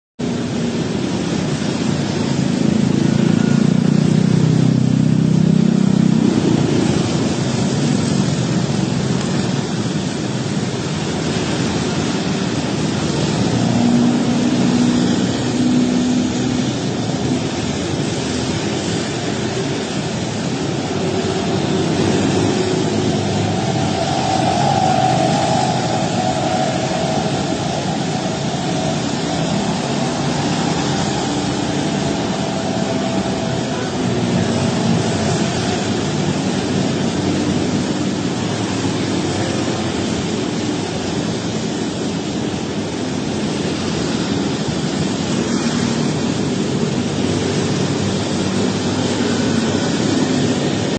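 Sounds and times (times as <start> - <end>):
road traffic noise: 0.2 - 50.9
low engine hum: 11.0 - 38.4.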